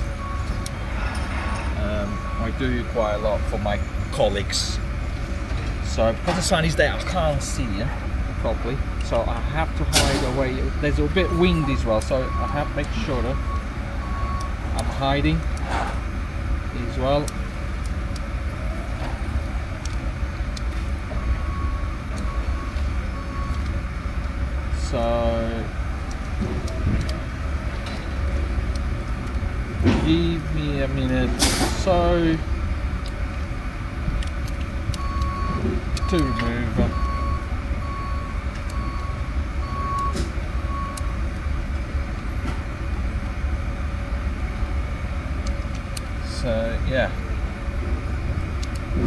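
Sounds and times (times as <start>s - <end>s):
reversing alarm beeping: 0.0s - 5.3s, 9.5s - 15.6s, 18.6s - 32.8s, 34.7s - 42.1s.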